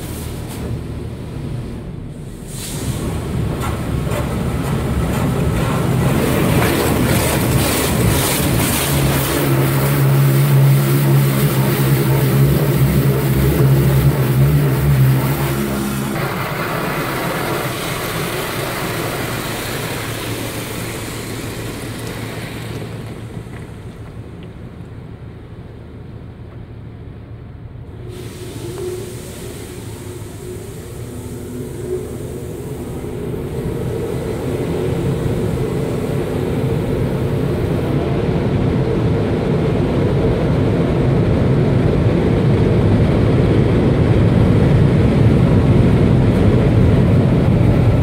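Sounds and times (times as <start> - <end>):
machine hum: 3.4 - 27.1
high-pressure water spray: 7.0 - 23.3, 28.1 - 36.8.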